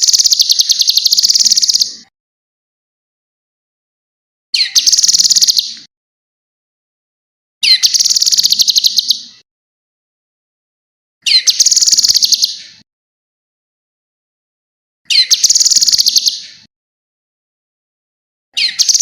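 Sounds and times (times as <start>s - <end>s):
songbird trilling: 0.0s - 2.1s, 4.6s - 5.8s, 7.6s - 9.4s, 11.2s - 12.8s, 15.1s - 16.6s, 18.6s - 19.0s.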